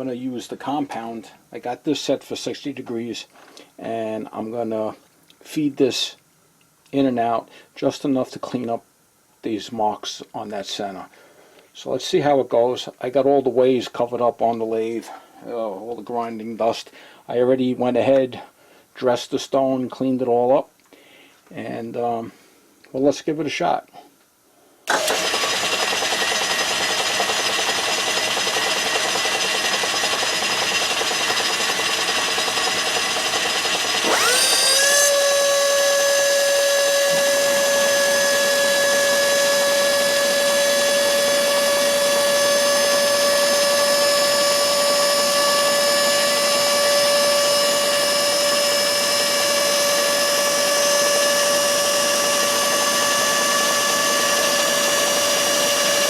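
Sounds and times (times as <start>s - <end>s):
grinder high-pitched whine: 24.9s - 56.0s
lower motor whine rising: 24.9s - 56.0s.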